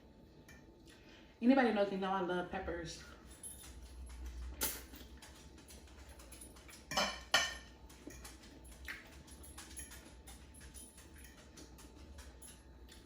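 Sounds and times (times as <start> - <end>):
cutlery clinking on a plate: 6.1 - 13.0.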